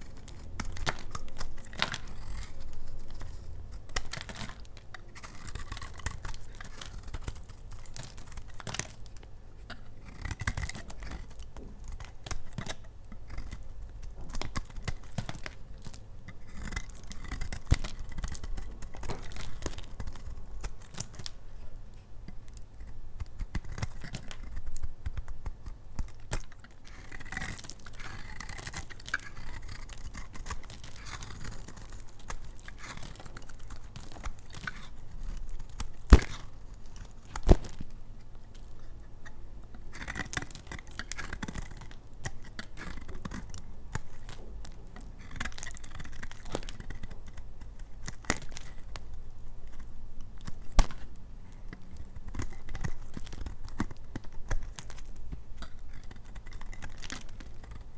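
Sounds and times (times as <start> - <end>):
knife scraping through soap: 0.0 - 9.0, 9.6 - 24.7, 26.0 - 37.9, 38.5 - 49.0
sharp clicks of soap breaking: 30.1 - 38.0.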